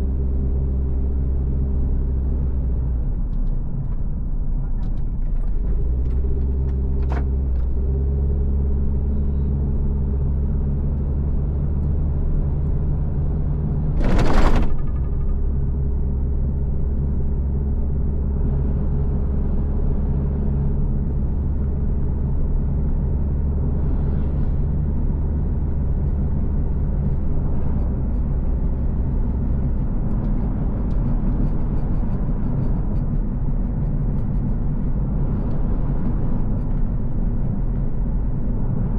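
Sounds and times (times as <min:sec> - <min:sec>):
car engine and road noise: 0:00.0 - 0:38.9
brief loud rushing: 0:14.0 - 0:15.1.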